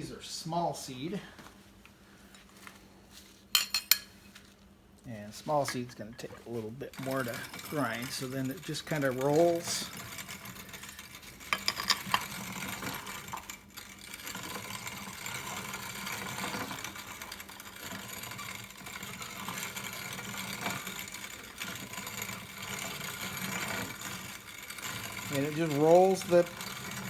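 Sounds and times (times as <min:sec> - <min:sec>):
hand grain grinder grinding seeds: 0:05.4 - 0:27.0.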